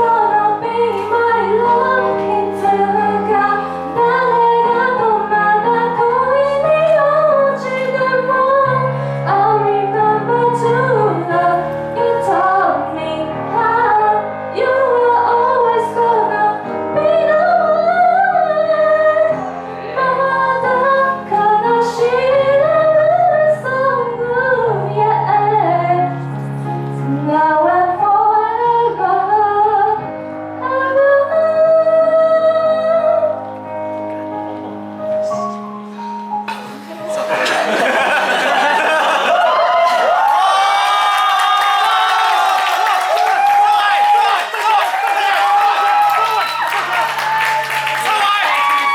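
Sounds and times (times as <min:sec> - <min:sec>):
woman singing a slow ballad: 0:00.0 - 0:26.3, 0:26.9 - 0:33.5
instrumental accompaniment: 0:24.9 - 0:39.5.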